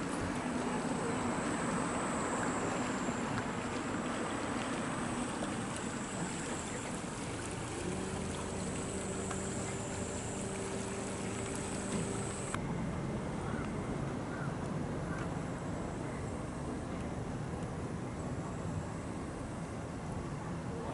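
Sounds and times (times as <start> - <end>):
rushing water: 0.0 - 12.6
low engine hum: 0.0 - 20.9.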